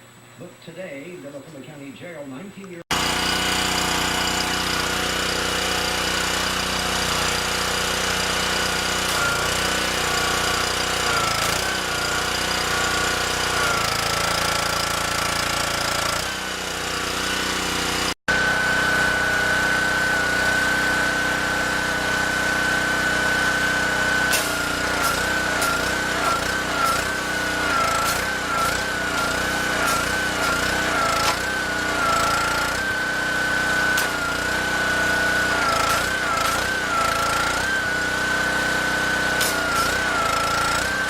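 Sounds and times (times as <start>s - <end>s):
high machine whine: 18.3s - 41.0s
machine rattling drone: 18.8s - 41.0s.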